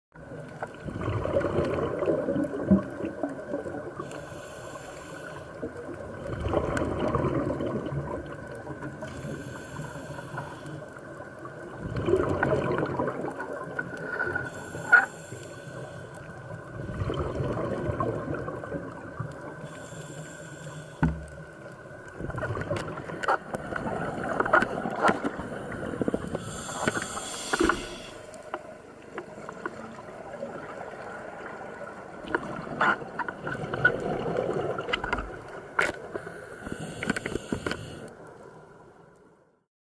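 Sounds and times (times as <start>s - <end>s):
diver exhaling bubbles: 0.8s - 4.0s, 6.0s - 9.4s, 11.7s - 15.1s, 16.7s - 19.2s
regulator inhale hiss: 4.0s - 5.6s, 9.0s - 10.8s, 14.4s - 16.3s, 19.6s - 21.2s, 25.4s - 28.6s, 36.1s - 38.2s.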